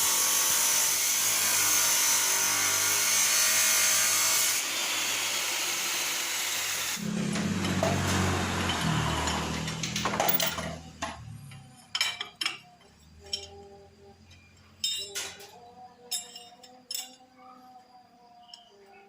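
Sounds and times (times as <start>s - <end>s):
loud steady hiss: 0.0s - 9.3s
metal parts clinking: 8.6s - 17.4s.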